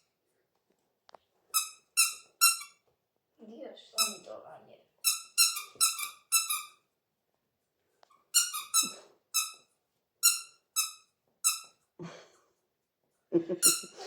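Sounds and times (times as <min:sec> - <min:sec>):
squeaky toy squeaks: 0:01.5 - 0:02.8, 0:04.0 - 0:04.3, 0:05.0 - 0:06.9, 0:08.1 - 0:11.8, 0:13.6 - 0:14.0.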